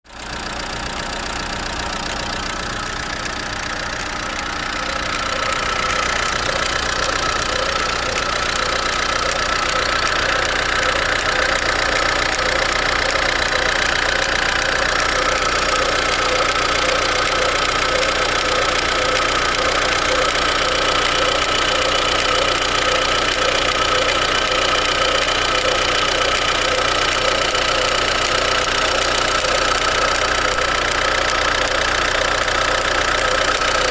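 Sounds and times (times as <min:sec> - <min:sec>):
diesel engine running: 0:00.0 - 0:33.9
steady high-pitched tone: 0:04.3 - 0:13.3.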